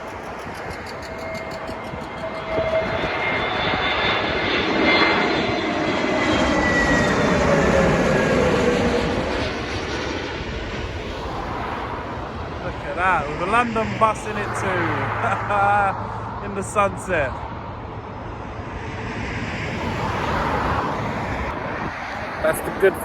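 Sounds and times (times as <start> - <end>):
jet airliner passing low: 0.0 - 23.0.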